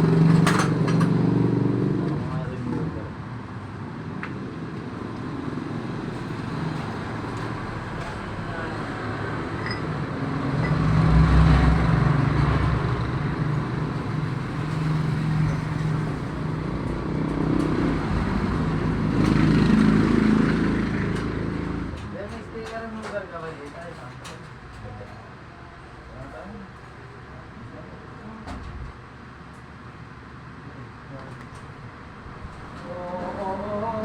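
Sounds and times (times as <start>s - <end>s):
vehicle engine running: 5.0s - 22.2s.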